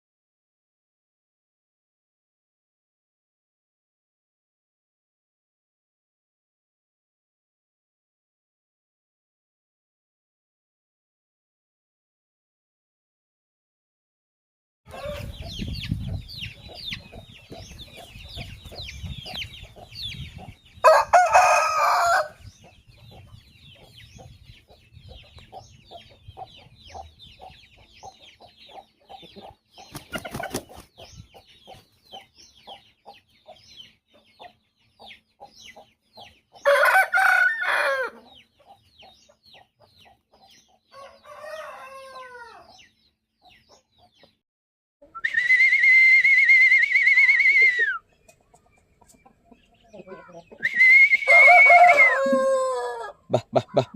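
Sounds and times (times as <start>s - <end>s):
rooster crowing: 14.9s - 15.4s, 20.8s - 22.4s, 36.6s - 38.2s, 40.9s - 42.7s, 51.1s - 53.2s
chicken squawk: 14.9s - 15.5s, 49.9s - 53.9s
chickens clucking and peeping: 14.9s - 44.4s, 45.0s - 45.3s, 47.6s - 53.9s.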